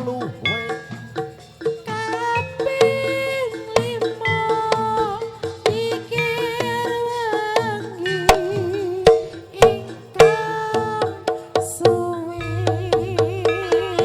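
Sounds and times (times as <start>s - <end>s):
hand drum strokes: 0.0s - 14.0s
steady drone: 12.4s - 14.0s
wavering melody line: 12.4s - 14.0s.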